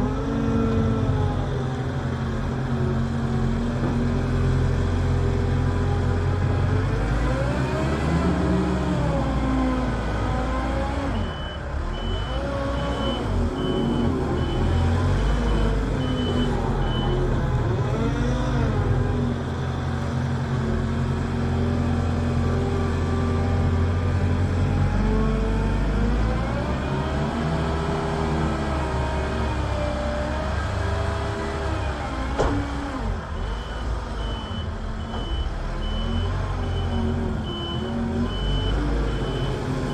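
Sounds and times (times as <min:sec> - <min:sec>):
heavy machinery engines revving: 0:00.0 - 0:39.9
reversing alarm beeping: 0:11.2 - 0:17.2, 0:33.4 - 0:39.9.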